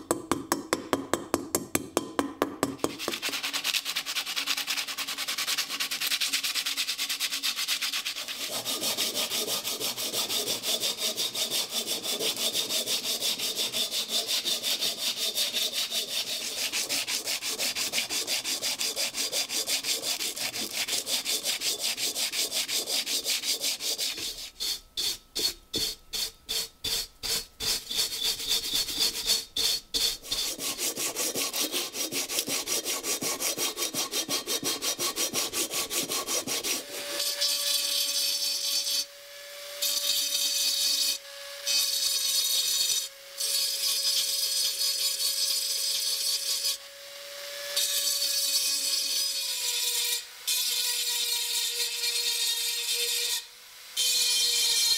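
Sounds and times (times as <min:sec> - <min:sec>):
abrasive rubbing on steel helmet: 0:02.8 - 0:37.2.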